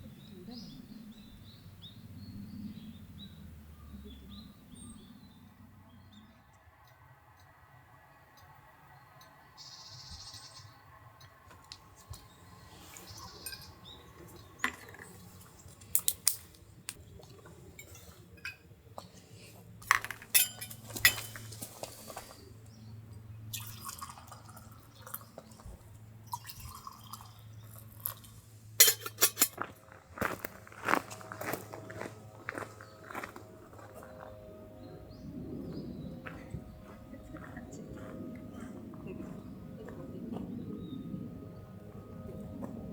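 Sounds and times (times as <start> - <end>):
faint low hum: 0.0 - 42.9
tableware clinking: 13.4 - 14.0, 19.9 - 21.6, 28.8 - 29.6.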